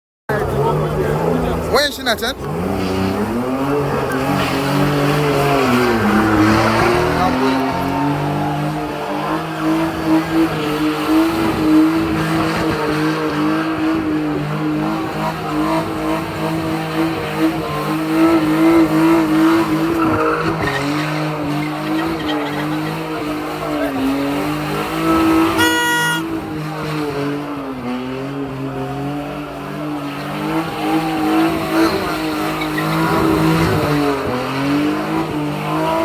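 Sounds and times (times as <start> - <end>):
car engine revving high: 0.3 - 36.0
tyres squealing: 1.9 - 13.6, 29.8 - 36.0.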